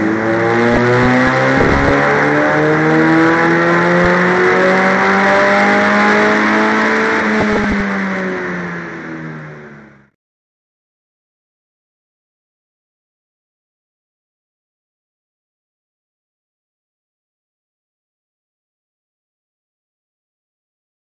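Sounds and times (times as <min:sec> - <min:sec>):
car engine revving under load: 0:00.0 - 0:10.1.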